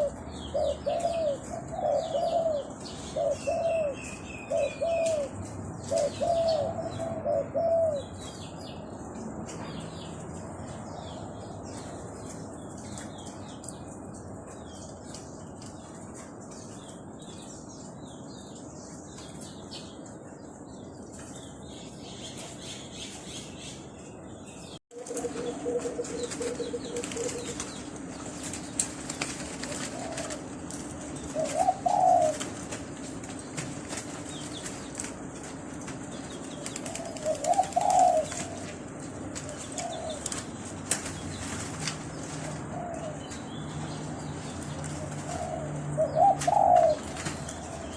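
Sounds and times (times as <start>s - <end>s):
dove cooing: 0.0s - 8.2s, 25.0s - 27.7s, 29.4s - 30.6s, 31.2s - 32.6s, 36.6s - 40.6s, 42.6s - 43.2s, 44.9s - 47.9s
small birds chirping: 0.0s - 47.9s.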